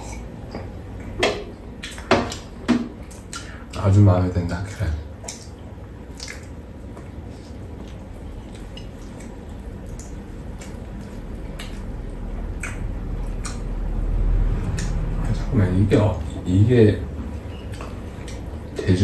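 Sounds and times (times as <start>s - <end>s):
people chewing: 0.0s - 19.0s
wet mouth clicks and lip smacks: 3.1s - 3.6s, 4.7s - 7.0s, 7.8s - 13.9s, 14.6s - 15.0s
low rumble: 10.9s - 17.4s.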